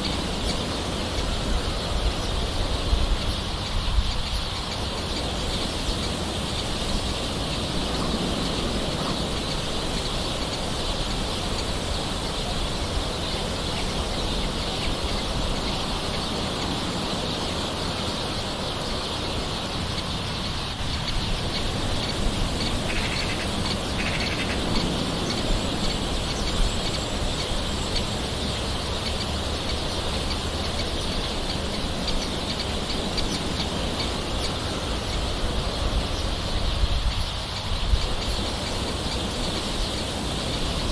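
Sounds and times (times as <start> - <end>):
birds calling: 0.0 - 40.9
soft rain patter: 38.0 - 40.9.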